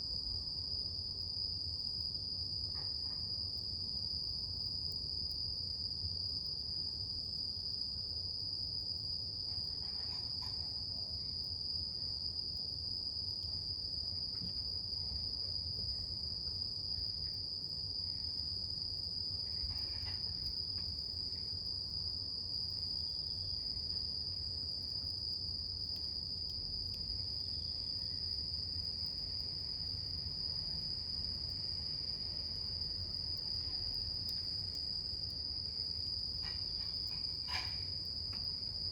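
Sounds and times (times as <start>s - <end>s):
campfire rumbling and crackling: 12.3s - 30.6s, 32.4s - 38.9s
insects trilling: 16.0s - 38.9s.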